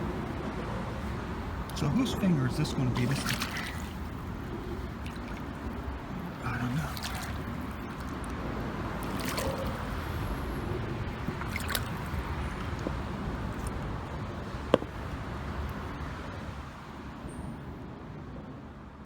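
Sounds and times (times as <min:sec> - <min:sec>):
water trickling and dripping: 0:01.7 - 0:10.2, 0:11.0 - 0:13.0.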